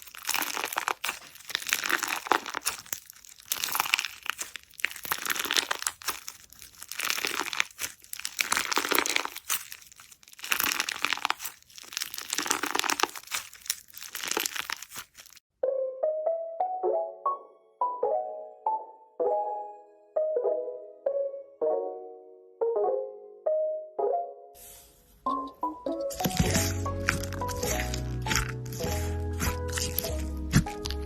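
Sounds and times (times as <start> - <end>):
crunchy slime squeezed by hand: 0.0 - 15.4, 25.9 - 31.0
piano music: 15.5 - 31.0.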